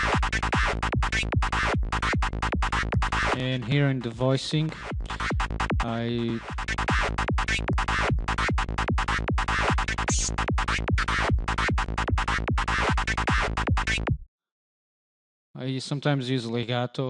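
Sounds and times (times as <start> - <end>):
synthesizer psytrance lead: 0.0 - 14.0.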